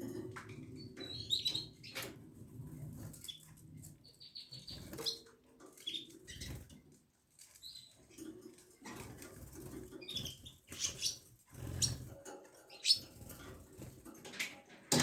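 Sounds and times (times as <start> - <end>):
canary chirping: 0.5 - 14.4
bird scratching and clicking: 7.3 - 9.7.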